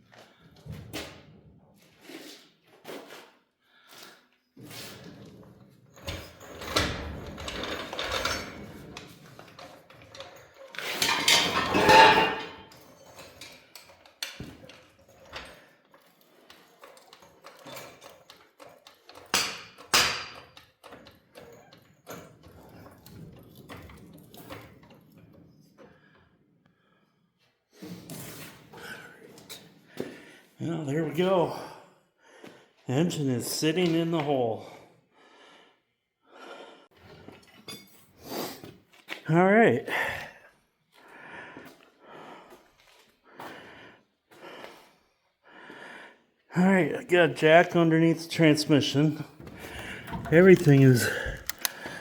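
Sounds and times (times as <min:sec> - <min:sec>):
metal clanks and rattles: 0:06.0 - 0:25.5, 0:49.4 - 0:52.0.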